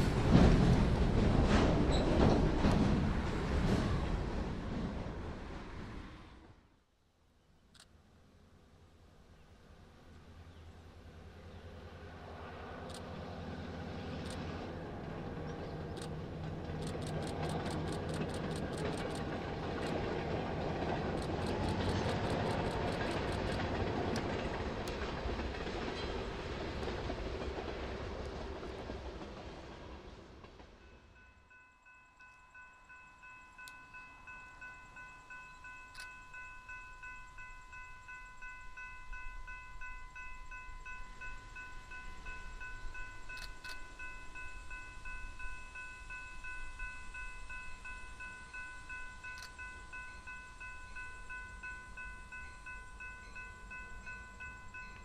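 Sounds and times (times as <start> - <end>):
train wheels clicking over rail joints: 0.0 - 5.2, 14.0 - 30.8
diesel locomotive engine: 0.0 - 6.8, 7.8 - 55.0
railroad crossing bell ringing: 30.8 - 55.0.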